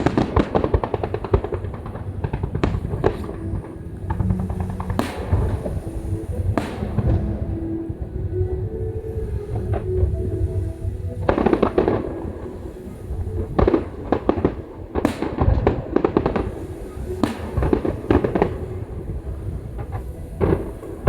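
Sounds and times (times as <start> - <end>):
fireworks bangs and crackling: 0.0 - 8.1, 13.6 - 21.0.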